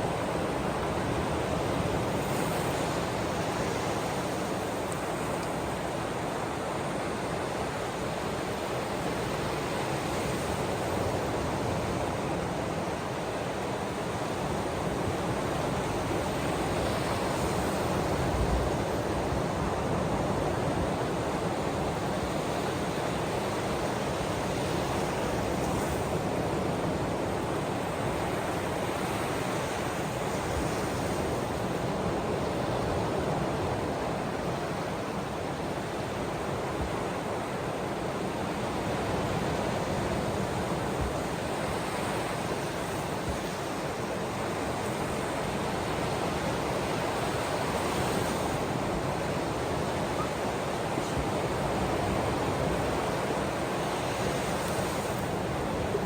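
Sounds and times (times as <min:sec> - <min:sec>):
ocean waves washing ashore: 0:00.0 - 0:56.0.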